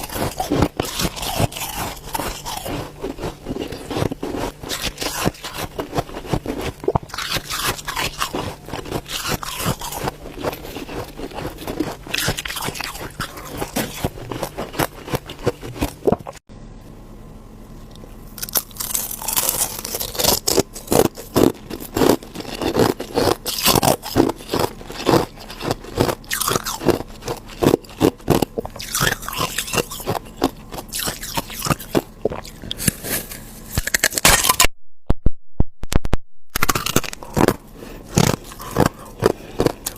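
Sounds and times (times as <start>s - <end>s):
ice being chewed: 0.0s - 16.4s, 17.8s - 34.7s, 36.6s - 39.9s.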